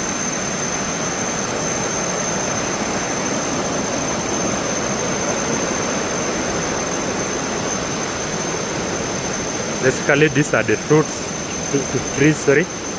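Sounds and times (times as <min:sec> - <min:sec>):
thin high whine: 0:00.0 - 0:12.9
waterfall roaring: 0:09.3 - 0:12.8.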